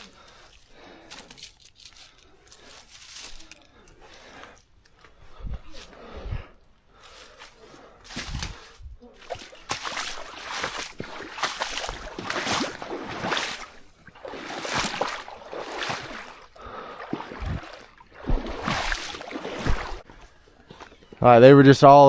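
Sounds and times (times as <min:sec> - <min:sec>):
wading through shallow water: 0:00.0 - 0:21.3.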